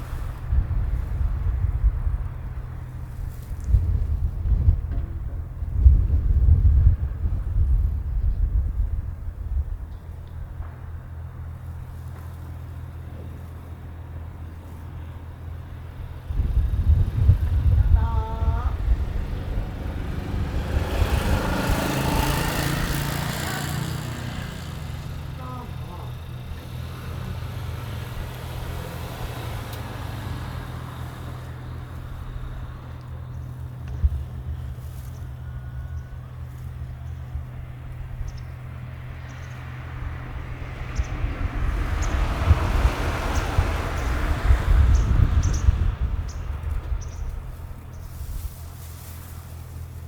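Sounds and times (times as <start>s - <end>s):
small engine running: 11.6s - 50.0s.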